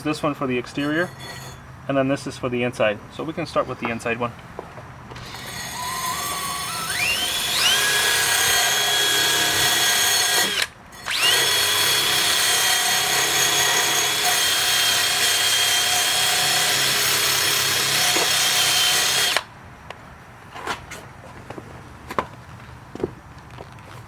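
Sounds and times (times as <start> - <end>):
electric drill with wire brush: 5.2 - 19.5.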